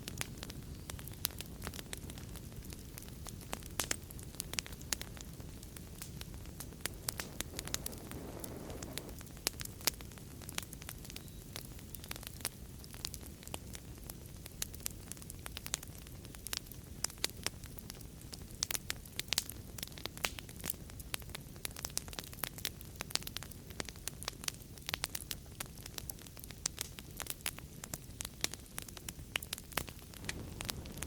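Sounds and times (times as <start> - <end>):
fire crackling and popping: 0.0 - 31.0
low rush of flames: 0.0 - 31.0
fire flaring whoosh: 4.5 - 10.5, 29.8 - 31.0.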